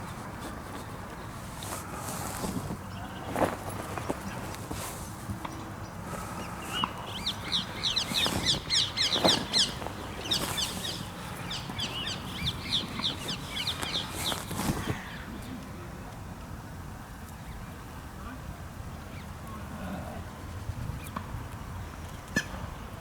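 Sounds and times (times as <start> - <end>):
bird chirping: 2.3 - 15.2.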